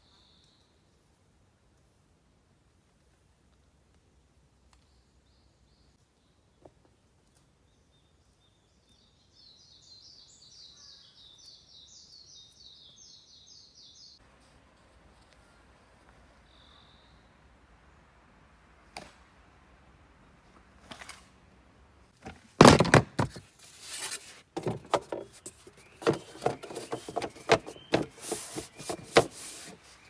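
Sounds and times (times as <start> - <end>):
bird chirping: 7.7 - 14.2, 16.4 - 17.4, 23.7 - 30.0.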